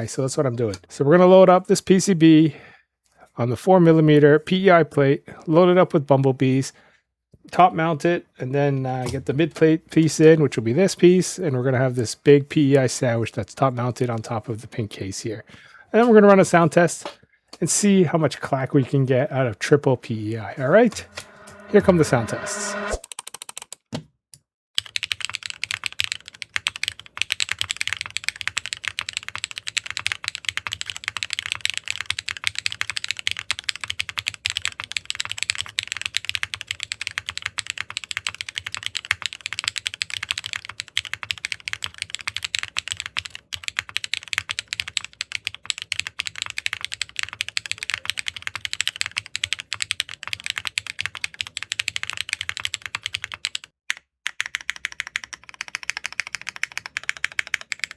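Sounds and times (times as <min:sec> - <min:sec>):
mechanical keyboard typing: 0:24.8 - 0:57.9.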